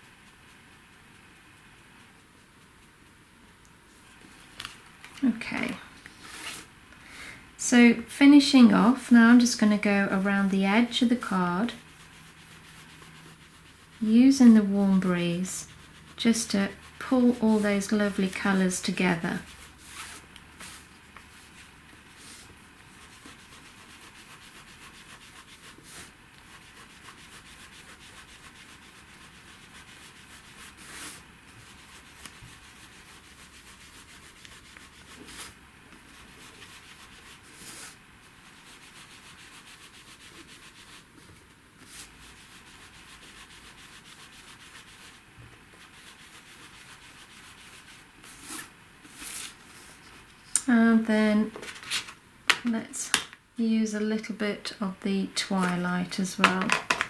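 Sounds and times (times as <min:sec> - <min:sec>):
ink applicator scratching paper: 0:08.8 - 0:49.5.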